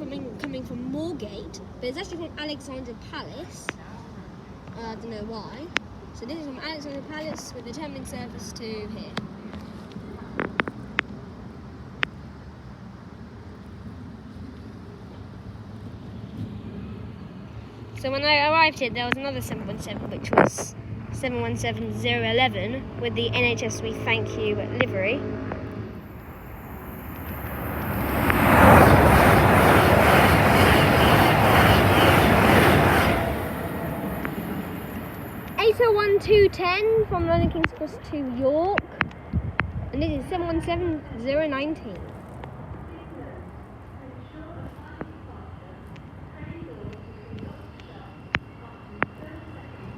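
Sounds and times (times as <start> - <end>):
electric train passing at speed: 0.0 - 49.9
low rumble: 22.8 - 35.6.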